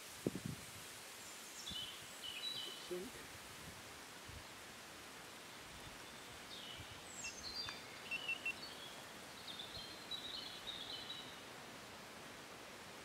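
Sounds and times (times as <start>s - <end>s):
faint outdoor background noise: 0.0s - 13.0s
songbird chirps and trills: 1.0s - 3.4s, 5.2s - 11.6s.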